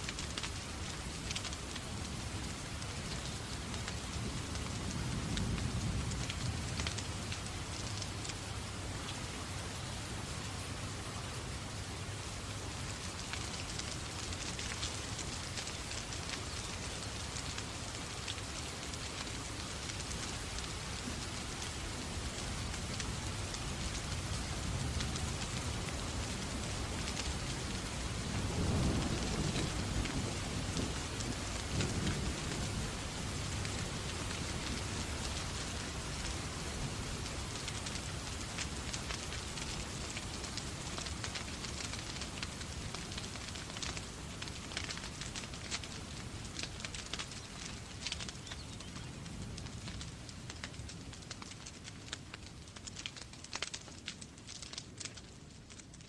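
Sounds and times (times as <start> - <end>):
steady rain: 0.0 - 56.0
low rumble of thunder: 3.3 - 8.7, 21.0 - 37.8.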